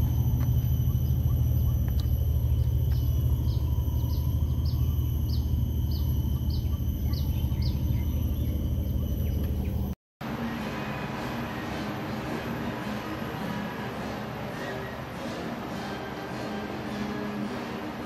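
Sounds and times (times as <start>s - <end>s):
steady low rumble: 0.0s - 10.0s
bird chirping: 0.0s - 10.7s
thin high whine: 0.0s - 18.0s.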